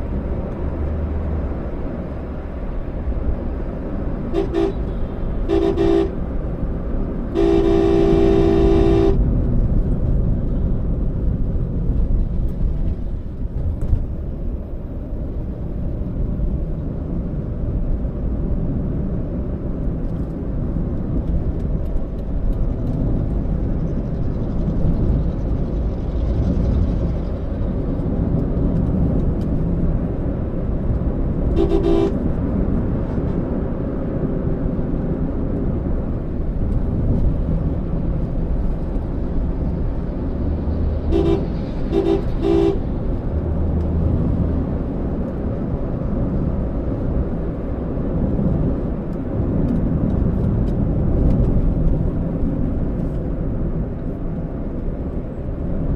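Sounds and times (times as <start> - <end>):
car road and engine rumble: 0.0 - 55.9
car horn honking: 4.3 - 6.2, 7.3 - 9.2, 31.5 - 32.2, 41.1 - 42.9.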